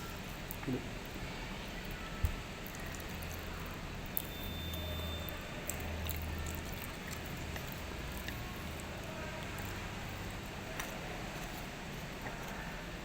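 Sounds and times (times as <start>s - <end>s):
person chewing: 5.3s - 12.8s.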